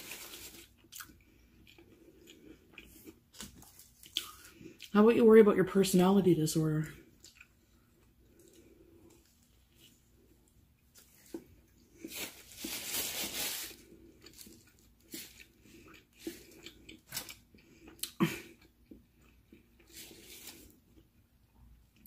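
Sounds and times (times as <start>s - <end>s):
chewing with wet smacks: 0.7s - 5.0s, 7.1s - 8.6s, 14.2s - 19.9s.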